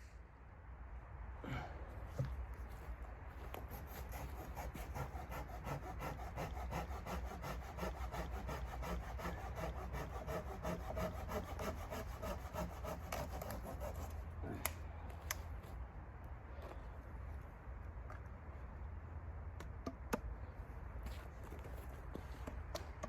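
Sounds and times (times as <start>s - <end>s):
hand saw cutting wood: 3.6s - 14.2s.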